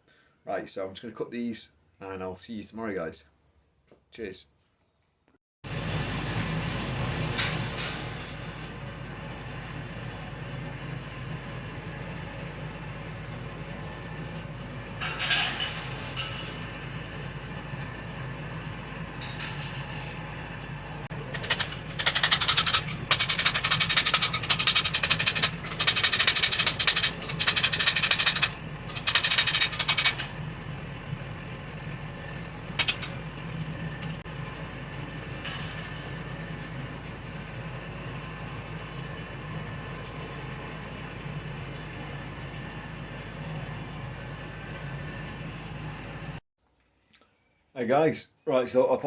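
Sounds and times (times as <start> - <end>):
steady low hum: 17.2 - 44.1
steel bar being cut: 21.1 - 31.2, 32.2 - 34.2.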